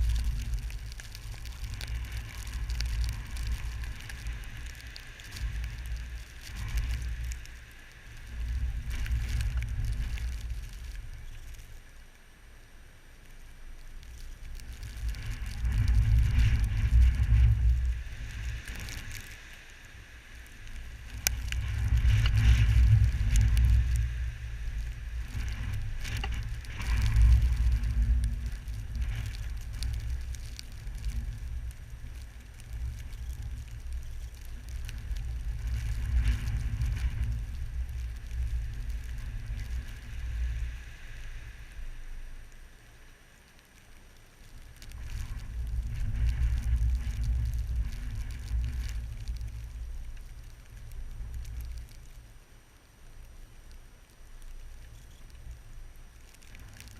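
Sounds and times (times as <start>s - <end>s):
wind gusting on microphone: 0.0s - 11.6s, 14.4s - 42.5s, 44.6s - 52.3s
light ticks: 0.0s - 12.2s, 20.4s - 56.9s
steady hiss: 0.0s - 56.9s.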